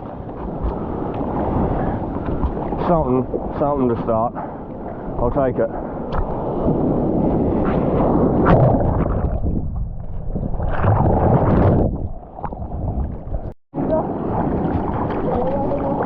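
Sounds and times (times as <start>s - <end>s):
rushing surf and whitewater: 0.0s - 9.4s, 13.8s - 16.0s
wind buffeting microphone: 0.0s - 16.0s.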